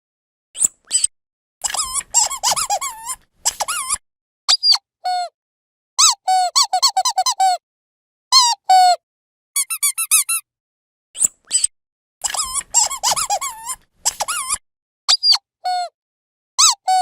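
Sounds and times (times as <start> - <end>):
squeaky dog toy squeaking: 0.9 - 5.3, 6.0 - 7.6, 8.4 - 9.0, 9.6 - 10.4, 11.5 - 15.9, 16.6 - 17.0.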